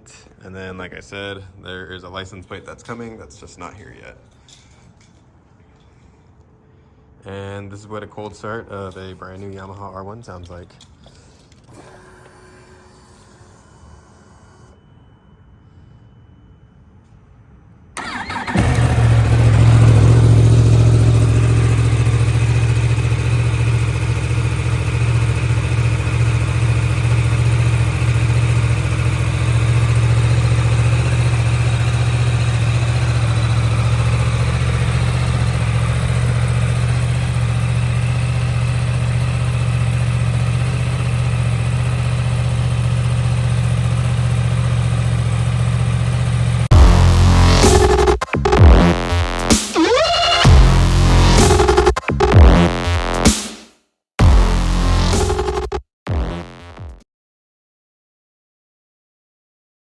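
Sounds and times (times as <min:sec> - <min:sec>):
motorcycle engine starting and idling: 0:18.0 - 0:53.4.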